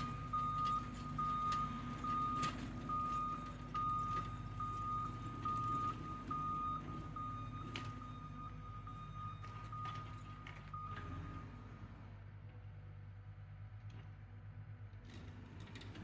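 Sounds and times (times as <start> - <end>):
reversing alarm beeping: 0.0 - 11.6
low engine rumble: 0.0 - 16.0.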